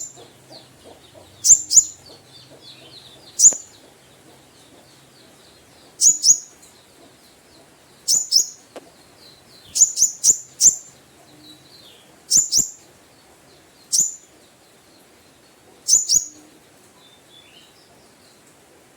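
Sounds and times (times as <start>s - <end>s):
faint bird twittering: 0.0s - 13.0s, 13.8s - 15.2s, 15.8s - 17.8s.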